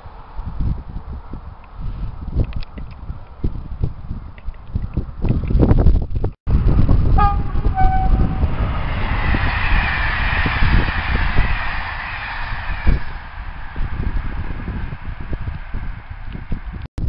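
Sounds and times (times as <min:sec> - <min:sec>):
high rushing rail noise: 0:06.5 - 0:16.9
train rumbling past: 0:06.5 - 0:16.9
train horn toots: 0:07.1 - 0:15.0.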